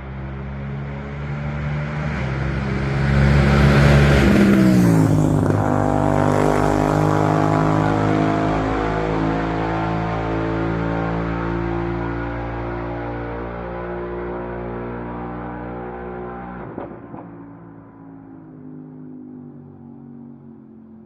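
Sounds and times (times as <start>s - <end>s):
motorcycle passing by: 0.0s - 16.6s.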